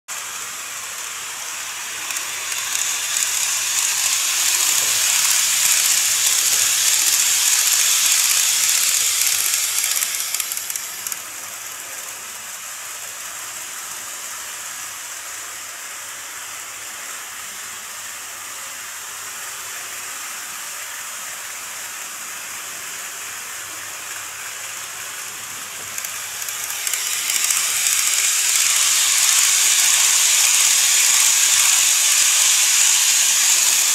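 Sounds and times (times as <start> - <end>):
model train wheels and motor hiss: 0.1 - 33.9.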